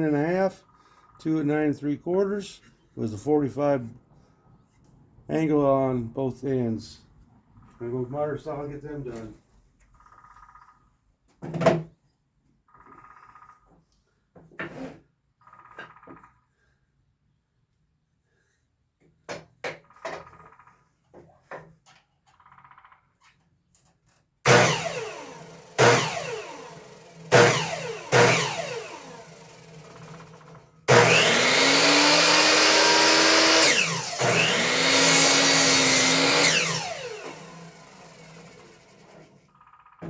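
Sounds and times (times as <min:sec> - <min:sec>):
miter saw cutting wood: 0:24.5 - 0:39.4
saw blade winding down whine: 0:24.5 - 0:39.4.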